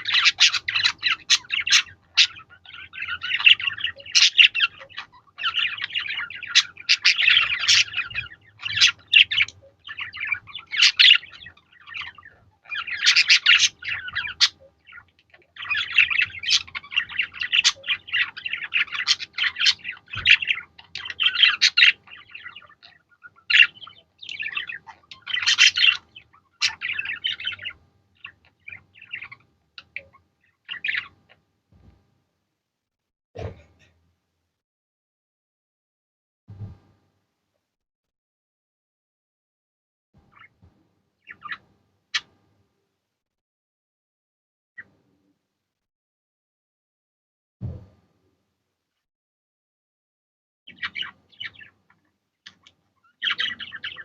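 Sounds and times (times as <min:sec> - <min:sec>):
budgerigars chattering and chirping: 0:00.0 - 0:31.4, 0:40.3 - 0:40.6, 0:41.2 - 0:41.6, 0:50.7 - 0:54.0.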